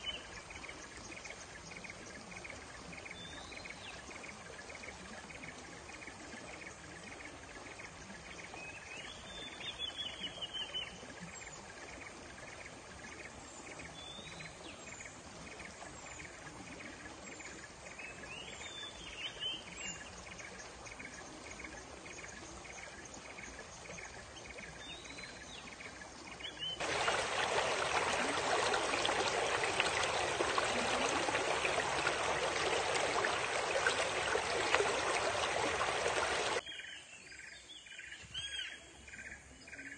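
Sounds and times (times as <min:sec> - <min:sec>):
soft water hiss: 0:00.0 - 0:38.7
loud rush of flowing water: 0:26.8 - 0:36.6.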